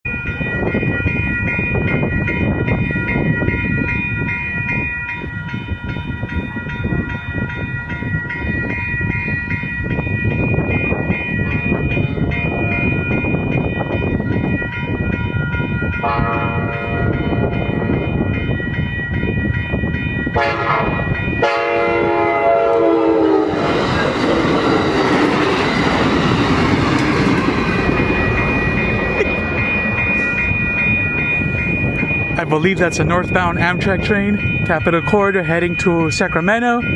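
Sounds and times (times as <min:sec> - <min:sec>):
crossing bells ringing: 0:00.0 - 0:36.9
train wheel and rail noise: 0:00.1 - 0:36.9
train horn: 0:16.0 - 0:17.2, 0:20.4 - 0:23.7.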